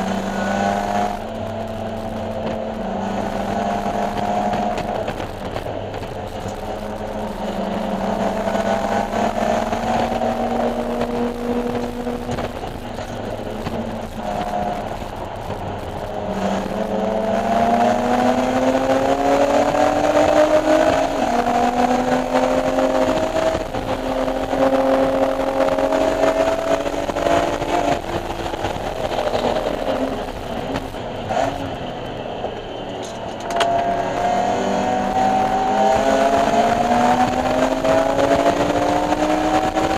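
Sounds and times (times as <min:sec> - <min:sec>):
car engine at full throttle: 0:00.0 - 0:39.9.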